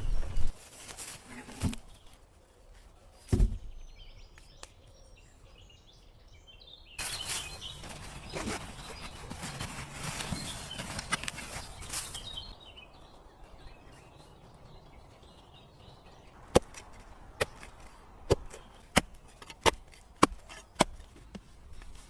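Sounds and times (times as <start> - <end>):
wood being chopped: 3.3 - 3.7, 16.4 - 21.5.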